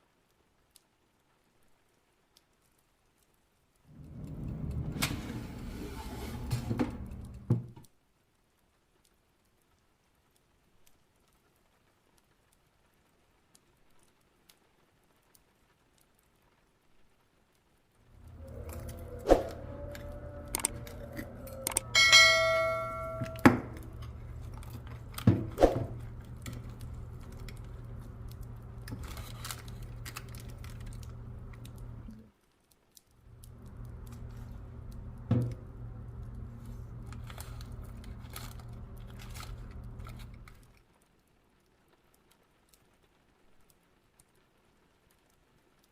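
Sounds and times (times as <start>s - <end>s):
steady low hum: 18.1s - 32.2s, 33.2s - 40.6s
metal kitchenware clinking: 20.6s - 26.7s.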